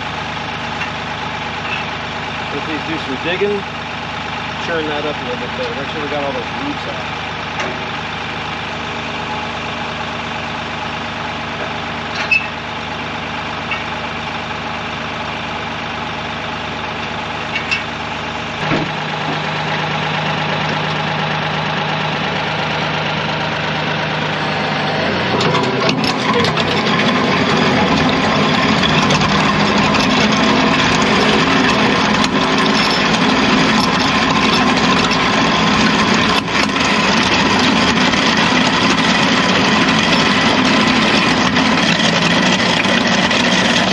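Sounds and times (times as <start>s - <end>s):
tractor diesel engine running: 0.0s - 43.9s
grinding in gravel: 24.2s - 43.9s.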